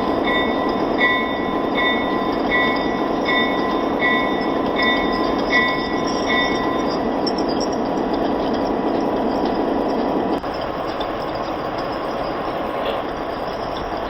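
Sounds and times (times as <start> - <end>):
crossing signal bell dinging: 0.0 - 14.0
model train rolling rumble: 0.0 - 14.0.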